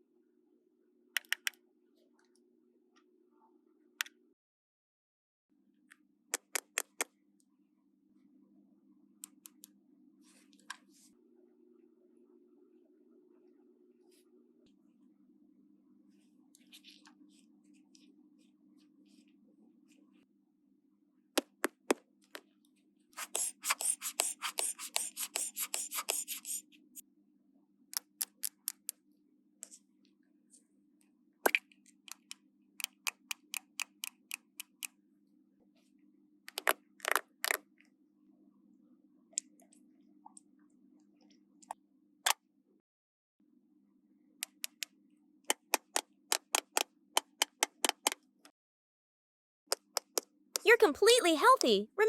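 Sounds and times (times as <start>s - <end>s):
plastic toys clicking and tapping: 32.1s - 34.8s, 45.5s - 48.2s, 49.8s - 50.2s.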